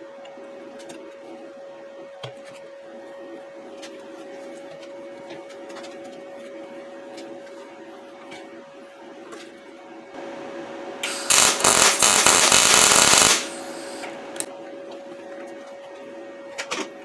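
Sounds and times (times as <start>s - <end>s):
faint hum: 10.2s - 16.6s
welding arc crackling: 11.0s - 14.5s.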